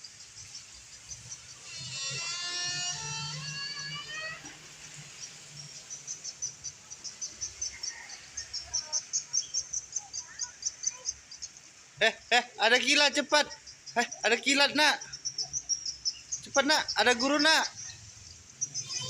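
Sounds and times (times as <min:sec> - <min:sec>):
cricket chirping: 0:00.0 - 0:19.0
high-pitched call: 0:01.7 - 0:04.6.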